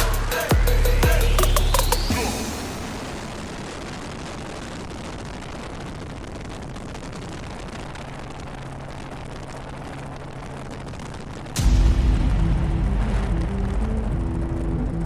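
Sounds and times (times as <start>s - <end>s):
faint low hum: 11.6s - 15.0s.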